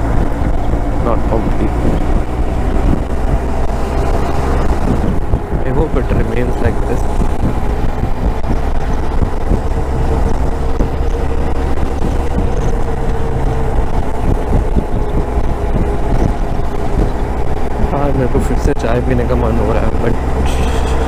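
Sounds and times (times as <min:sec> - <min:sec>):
motorcycle engine cruising: 0:00.0 - 0:21.0
wind noise on microphone: 0:00.0 - 0:21.0.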